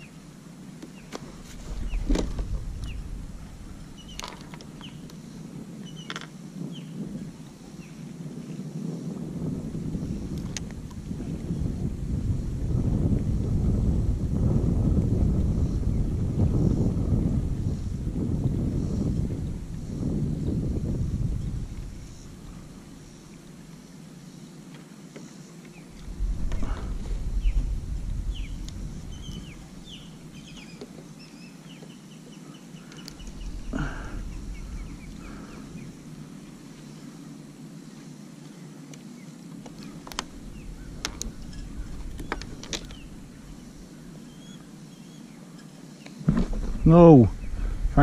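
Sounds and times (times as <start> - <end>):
low rumble bursts: 1.2 - 5.5, 25.9 - 30.8, 32.8 - 37.1, 39.7 - 44.6, 46.3 - 48.0.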